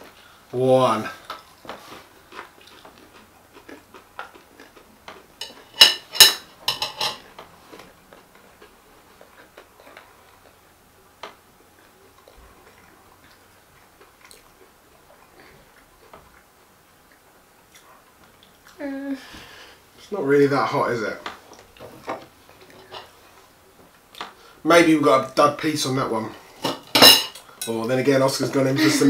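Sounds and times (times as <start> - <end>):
people chewing crunchy food: 0.0 - 5.8, 7.2 - 20.1.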